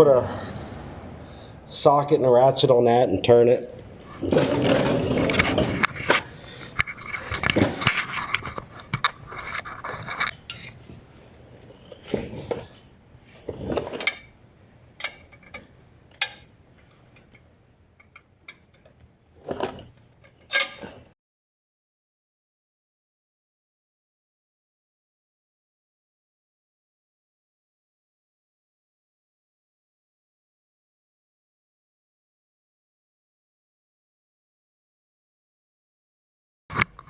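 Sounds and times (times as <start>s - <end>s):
metal hand tools clinking: 9.8s - 10.8s.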